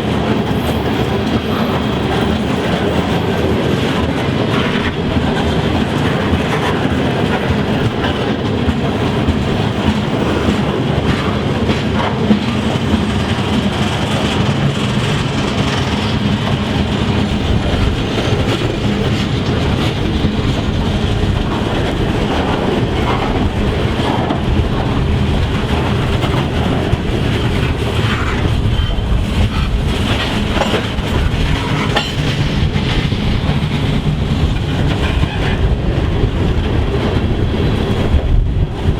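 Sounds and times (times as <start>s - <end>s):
train wheels clacking over rails: 0.0s - 38.9s.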